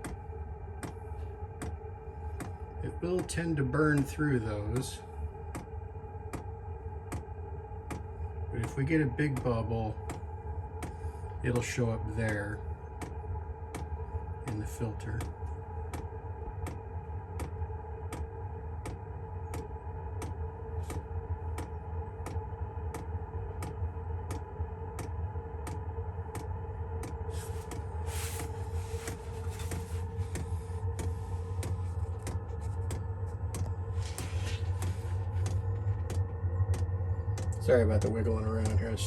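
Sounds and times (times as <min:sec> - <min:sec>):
blower fan hum: 0:00.0 - 0:39.0
fuel pump clicking: 0:26.4 - 0:39.0
rustling: 0:27.3 - 0:36.1.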